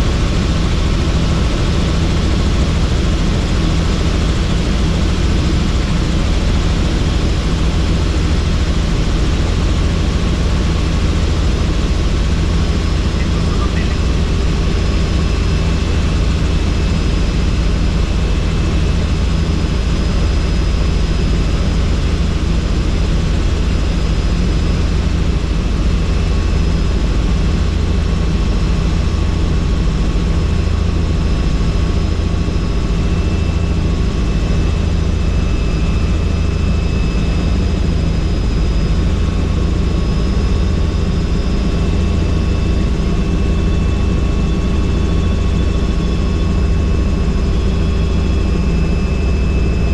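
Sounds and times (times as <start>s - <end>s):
helicopter rotor and engine: 0.0s - 49.9s
thin high whine: 12.9s - 14.5s.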